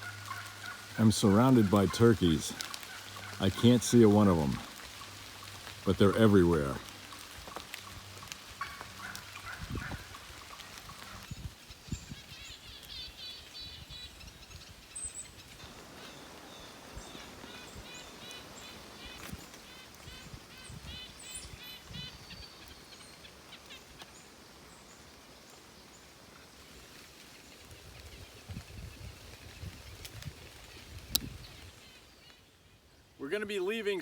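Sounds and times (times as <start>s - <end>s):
wild turkeys calling: 0.0s - 27.8s.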